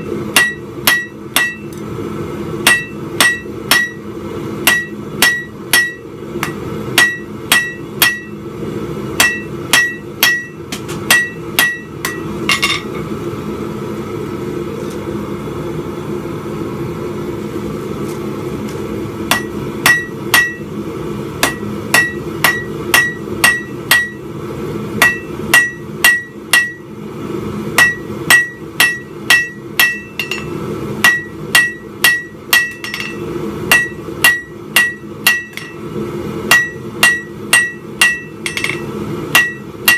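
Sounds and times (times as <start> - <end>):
steady low hum: 0.0 - 39.9
hammer ringing on anvil: 0.3 - 1.8, 2.6 - 4.0, 4.6 - 8.4, 9.2 - 13.0, 19.3 - 20.7, 21.4 - 24.2, 25.0 - 26.9, 27.8 - 35.8, 36.5 - 39.9.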